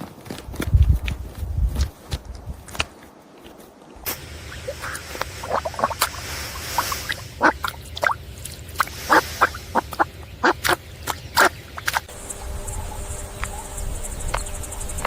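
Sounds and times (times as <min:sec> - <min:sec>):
low background rumble: 0:12.1 - 0:15.0.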